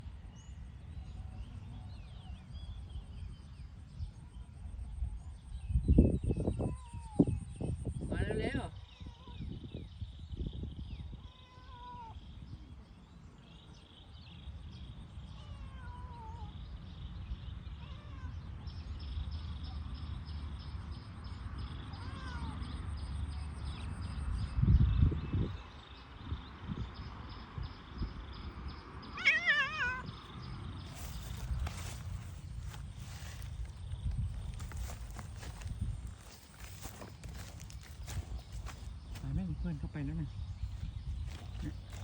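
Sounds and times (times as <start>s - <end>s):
cat meowing: 11.2s - 12.2s, 15.3s - 16.5s, 17.8s - 18.5s, 21.9s - 22.6s, 29.2s - 30.1s.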